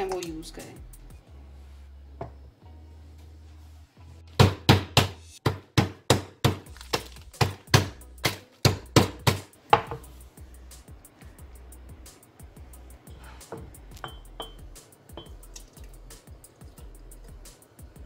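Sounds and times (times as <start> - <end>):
ice being crushed in a bag: 6.5 - 7.7.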